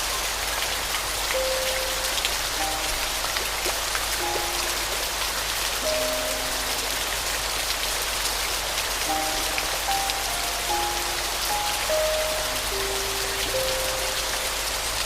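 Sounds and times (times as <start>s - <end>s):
steady rain pattering: 0.0s - 15.0s
soft piano notes: 1.3s - 15.0s.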